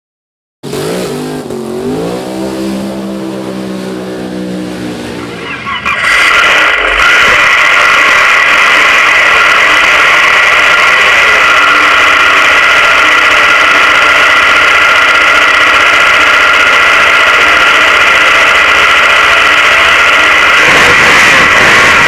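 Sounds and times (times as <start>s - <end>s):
drag car engine idling loudly: 5.1s - 22.0s.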